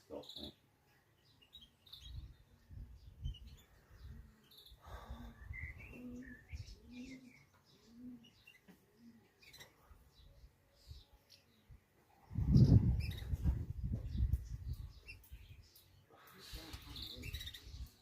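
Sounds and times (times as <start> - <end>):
small birds chirping: 0.0 - 18.0
pigeon cooing: 4.8 - 10.0
wind rumble on microphone: 12.2 - 15.6.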